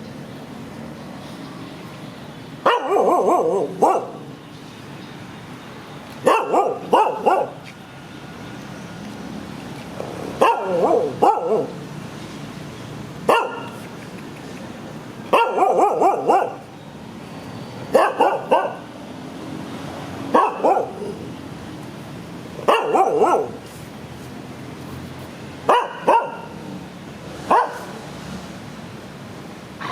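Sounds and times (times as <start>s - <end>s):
dog barking: 2.6s - 4.3s, 6.2s - 7.6s, 10.4s - 11.8s, 13.3s - 13.8s, 15.3s - 16.7s, 17.9s - 18.9s, 20.3s - 21.2s, 22.6s - 23.6s, 25.7s - 26.6s, 27.4s - 28.0s.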